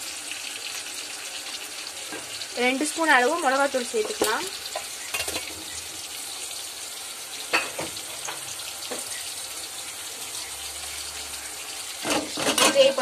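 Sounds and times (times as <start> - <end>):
masala sizzling in a pot: 0.0 - 13.0.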